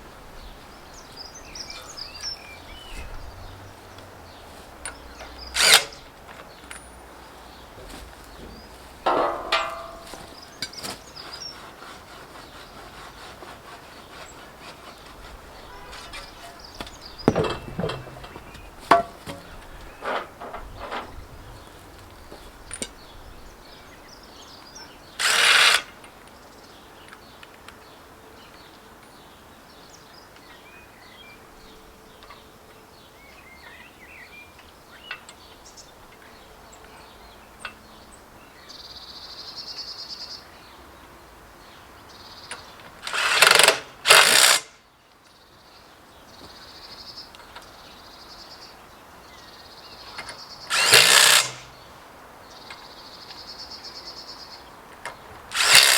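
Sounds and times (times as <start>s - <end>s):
birds chirping and singing: 0.2s - 25.4s.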